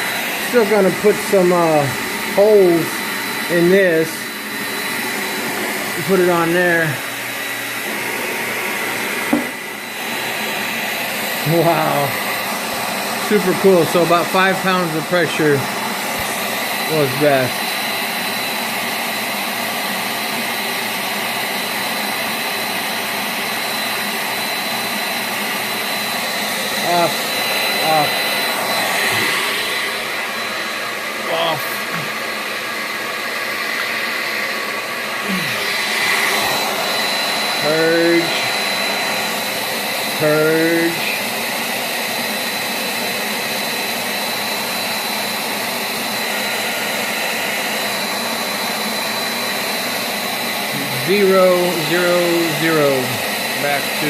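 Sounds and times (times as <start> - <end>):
gas forge burner roaring: 0.0 - 19.5, 23.4 - 41.1, 50.6 - 54.0.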